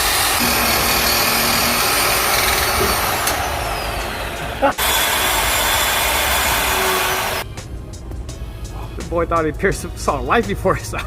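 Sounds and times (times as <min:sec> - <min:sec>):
bandsaw cutting metal: 0:00.0 - 0:07.4.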